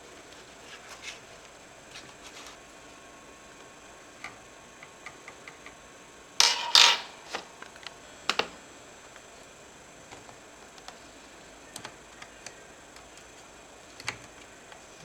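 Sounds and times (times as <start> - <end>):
laptop parts clicking and tapping: 11.7 - 14.8.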